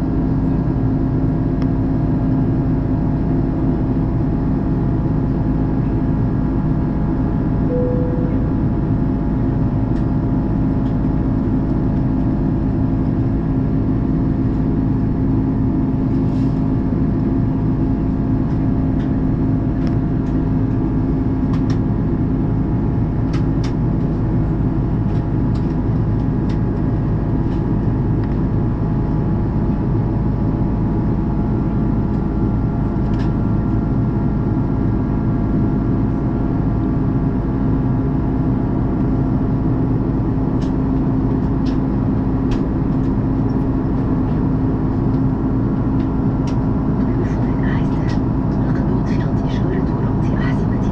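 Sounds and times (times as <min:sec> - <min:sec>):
airplane cabin engine noise: 0:00.0 - 0:50.9
low hum: 0:07.6 - 0:10.2.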